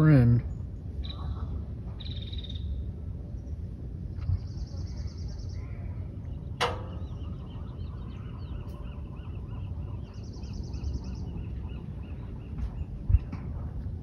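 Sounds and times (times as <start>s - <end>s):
birds chirping: 0.0s - 14.0s
low microphone rumble: 0.0s - 14.0s
high rapid bird trill: 4.6s - 13.2s.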